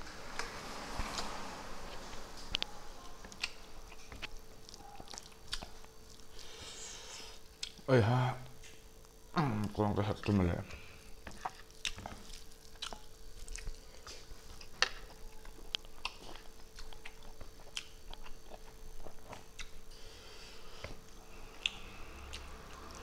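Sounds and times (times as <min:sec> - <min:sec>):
chewing and mouth smacking: 0:02.6 - 0:06.5, 0:11.2 - 0:19.8.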